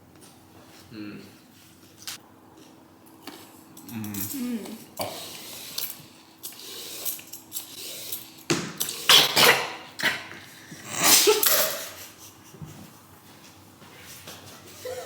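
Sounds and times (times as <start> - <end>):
person coughing hard: 9.0 - 12.0.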